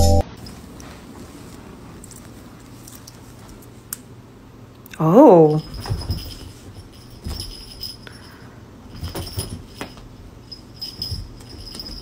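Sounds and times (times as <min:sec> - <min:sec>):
small bell jingling: 0:05.5 - 0:12.0.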